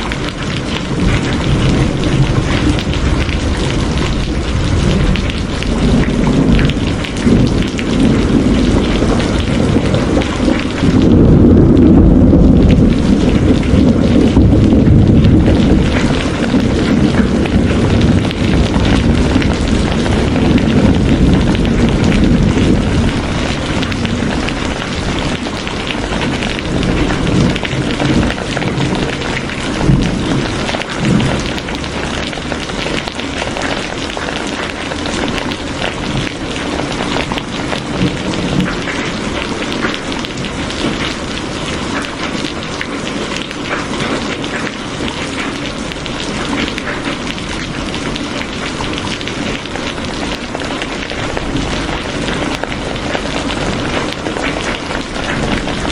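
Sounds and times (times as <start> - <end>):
heavy rain falling: 0.0 - 55.9
low rumble: 1.0 - 32.4.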